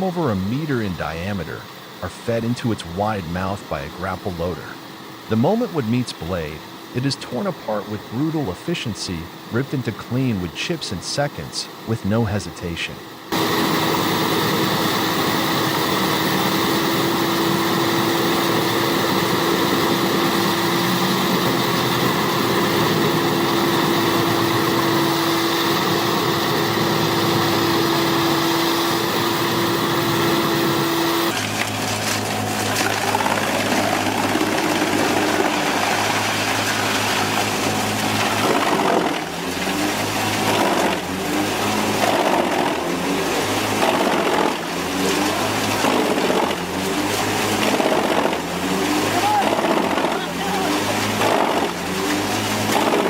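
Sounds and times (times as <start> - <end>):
engine noise: 0.0 - 53.0
wood chipper whine: 13.1 - 53.0
wood cracking: 31.3 - 41.0, 43.8 - 50.2.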